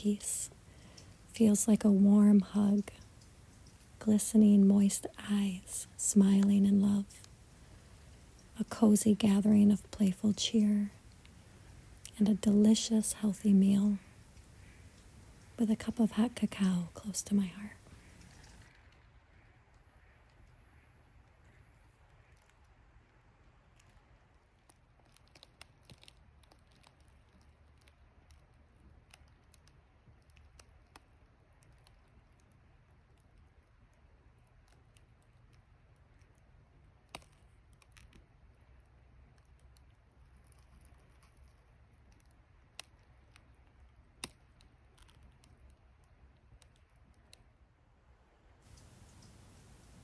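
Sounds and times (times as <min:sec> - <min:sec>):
low steady hum: 0:00.0 - 0:18.8, 0:42.8 - 0:50.0
faint clicks: 0:00.0 - 0:19.0, 0:48.7 - 0:50.0
faint low rumble: 0:00.0 - 0:19.3
faint clicks and ticks: 0:00.0 - 0:47.5, 0:48.7 - 0:50.0.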